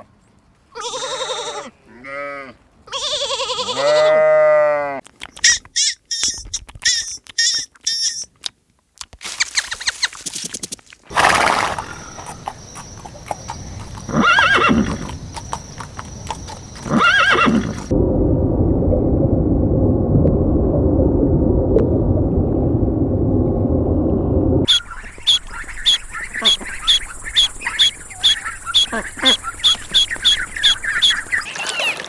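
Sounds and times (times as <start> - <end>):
clicking hooves: 5.1 - 17.9, 27.4 - 32.0
horse neighing: 11.1 - 17.9
steady low rushing noise: 17.9 - 24.7.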